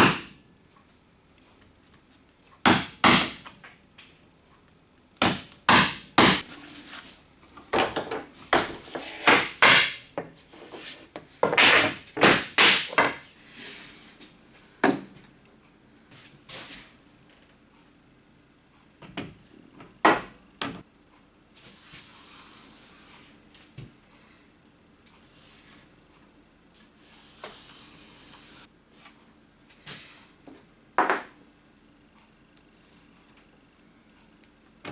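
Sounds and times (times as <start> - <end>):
wood and tools knocking: 11.2 - 13.2
steady hiss: 26.8 - 28.7.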